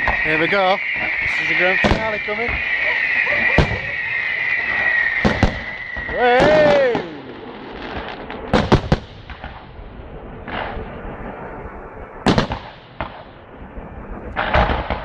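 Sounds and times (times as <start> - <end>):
firework shells bursting: 0.0 - 9.6
continuous rush of noise: 0.0 - 15.0.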